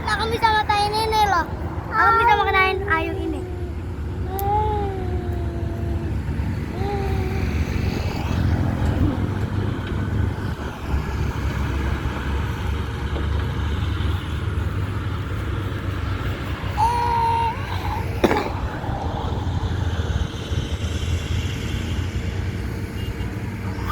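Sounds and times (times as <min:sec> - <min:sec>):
diesel machinery rumbling: 0:00.0 - 0:23.9.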